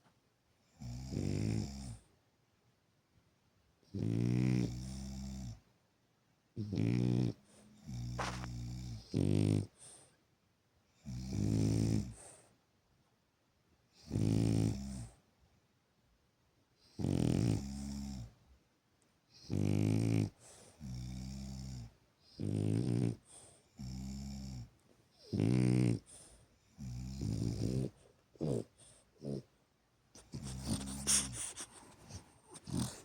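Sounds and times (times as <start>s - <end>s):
dog snoring: 0.6s - 2.1s, 3.8s - 5.6s, 6.6s - 10.2s, 10.9s - 12.5s, 13.9s - 15.2s, 16.8s - 18.4s, 19.3s - 29.5s, 30.1s - 33.0s.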